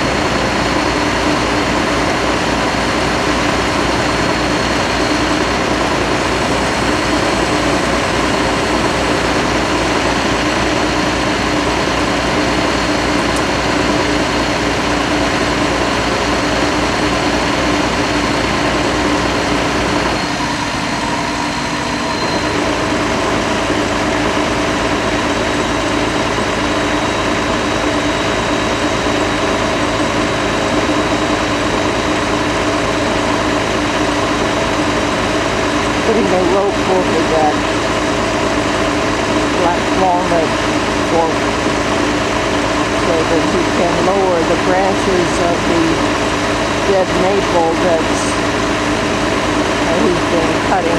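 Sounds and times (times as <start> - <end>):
truck engine running steadily: 0.0 - 50.9.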